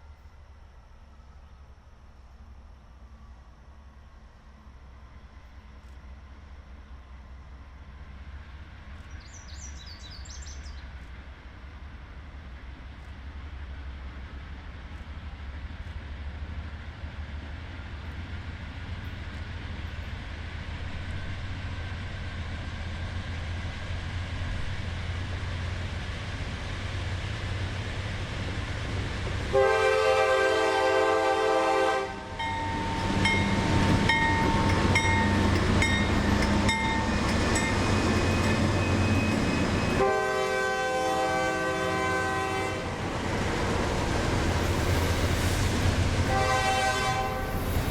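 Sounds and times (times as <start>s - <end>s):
locomotive engine rumble: 0.0s - 47.9s
wheel and rail noise: 0.0s - 47.9s
train horn blast: 29.4s - 33.4s, 38.3s - 43.1s, 46.2s - 47.8s
high squealing tones: 34.2s - 40.0s.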